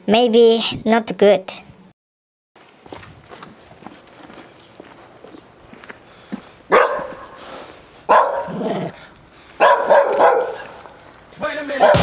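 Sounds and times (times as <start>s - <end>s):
dog barking: 6.7s - 7.5s, 8.1s - 8.9s, 9.6s - 11.0s, 11.7s - 12.0s.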